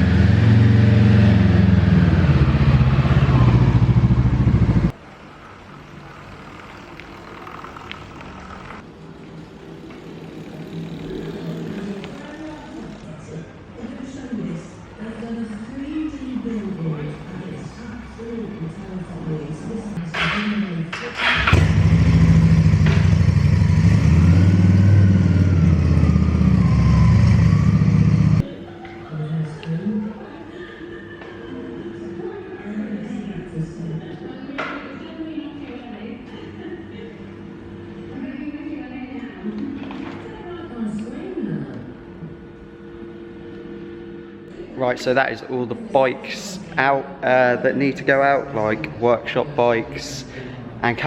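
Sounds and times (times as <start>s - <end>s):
motorcycle engine running: 0.0s - 5.0s, 21.3s - 28.5s.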